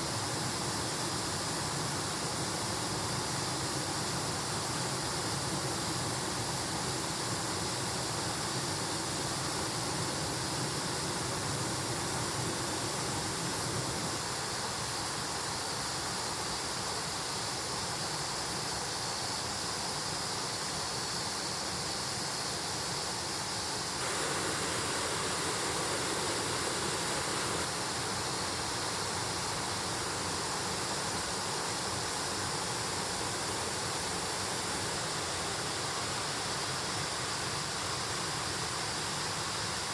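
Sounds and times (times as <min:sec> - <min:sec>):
stream flowing: 0:24.0 - 0:32.0.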